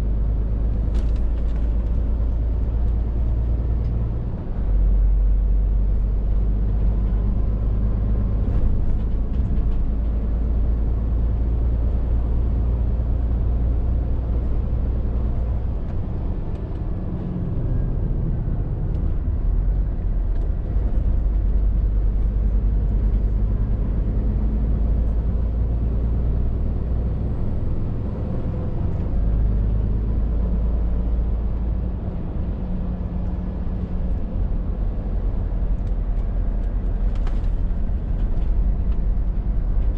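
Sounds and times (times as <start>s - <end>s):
lorry diesel engine running: 0.0s - 39.9s
road noise: 0.0s - 39.9s.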